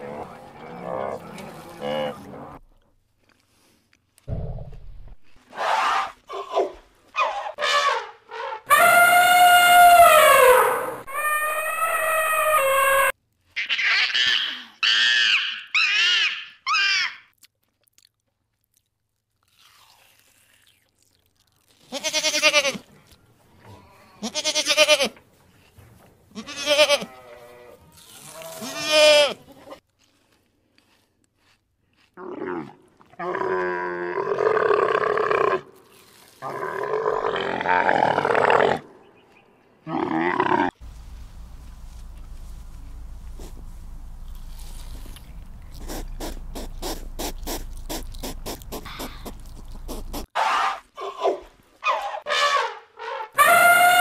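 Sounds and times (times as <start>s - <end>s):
gibbon whooping: 8.7s - 13.1s, 53.4s - 54.0s
goat bleating: 21.9s - 22.9s, 24.2s - 25.2s, 26.3s - 27.7s, 28.4s - 29.7s.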